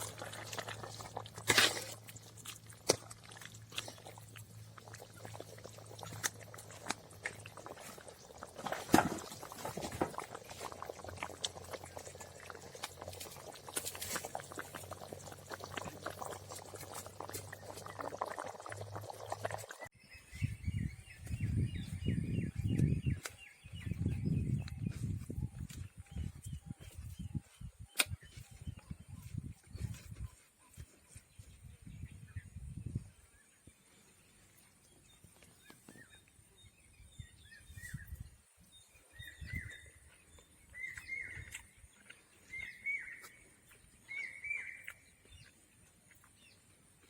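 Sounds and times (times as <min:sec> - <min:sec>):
gravy bubbling in a pot: 0:00.0 - 0:25.6, 0:35.6 - 0:43.4.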